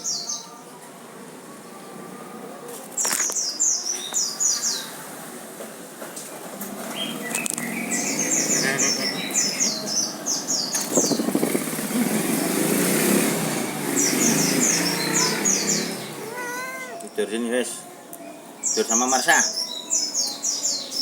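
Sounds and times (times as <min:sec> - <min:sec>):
small bird chirping: 0:06.9 - 0:16.9.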